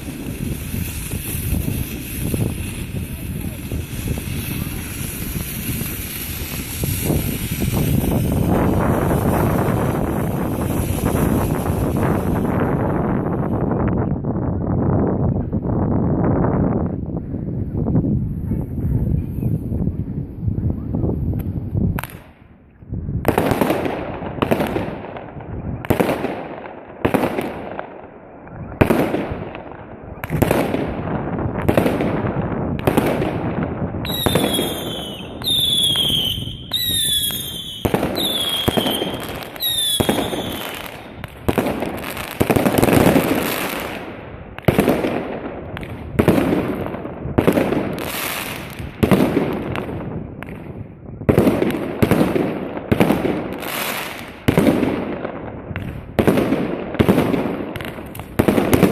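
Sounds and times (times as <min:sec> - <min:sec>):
whistling fireworks falling in pitch: 0:00.0 - 0:13.9, 0:30.1 - 0:58.9
firework launches and bangs: 0:00.0 - 0:14.0, 0:21.2 - 0:22.5, 0:23.1 - 0:58.9.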